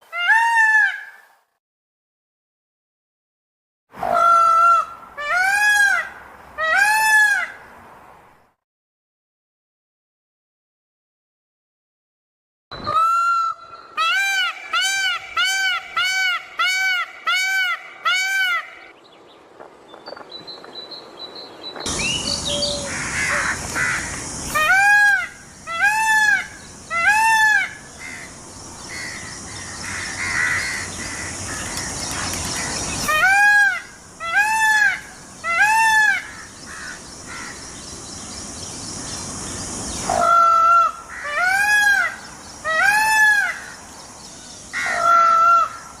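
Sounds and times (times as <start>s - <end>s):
peacock calling: 4.0s - 7.7s, 12.8s - 19.0s, 21.8s - 46.0s.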